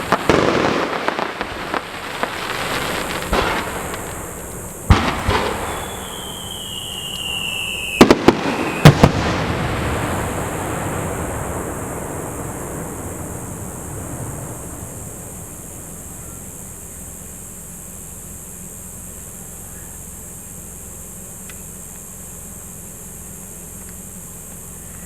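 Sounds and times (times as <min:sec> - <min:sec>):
firework bangs: 0:00.0 - 0:17.0
rumbling crackling firework tail: 0:00.0 - 0:19.0
firework whistle sliding down: 0:02.7 - 0:10.6.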